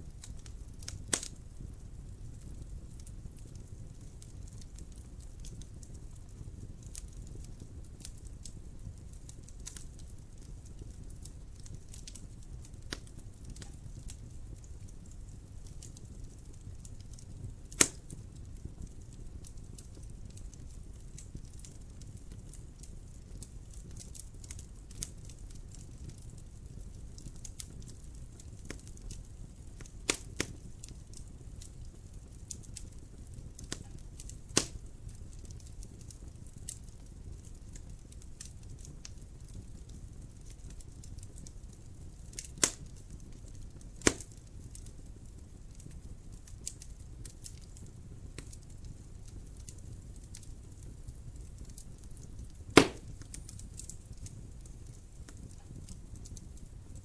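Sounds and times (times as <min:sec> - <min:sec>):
wood fire crackling: 0:00.0 - 0:57.0
loud sharp pops: 0:17.8 - 0:18.0, 0:34.6 - 0:34.8, 0:44.0 - 0:44.3, 0:52.8 - 0:53.2.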